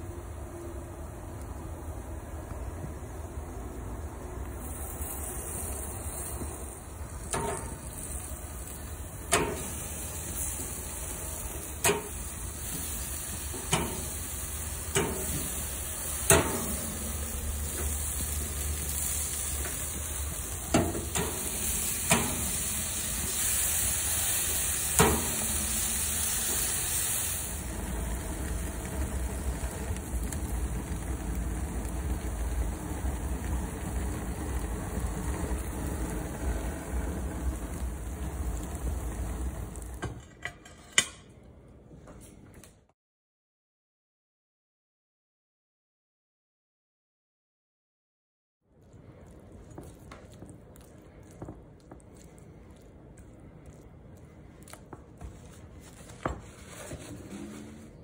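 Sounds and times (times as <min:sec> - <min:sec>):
ribs sizzling on a grill: 0:04.6 - 0:40.0.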